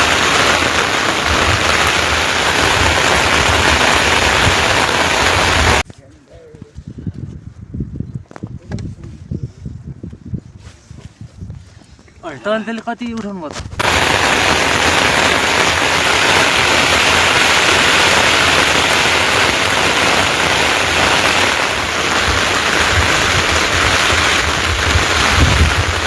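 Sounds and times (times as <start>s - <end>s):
heavy rain falling: 0.0s - 5.8s, 13.8s - 26.0s.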